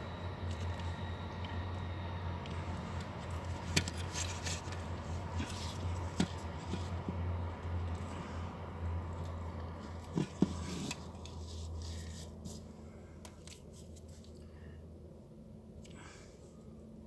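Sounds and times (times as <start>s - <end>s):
low hum: 0.0s - 10.2s.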